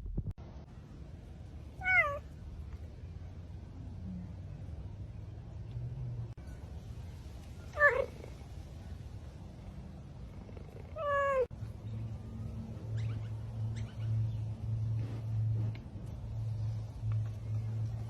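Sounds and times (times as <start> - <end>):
cat meowing: 1.8 - 2.2, 7.8 - 8.3, 10.9 - 11.5.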